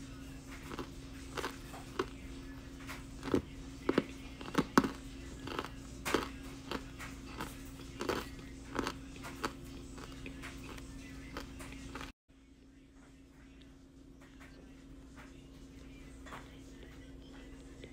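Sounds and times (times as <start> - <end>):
crunchy chewing: 0.4 - 12.2.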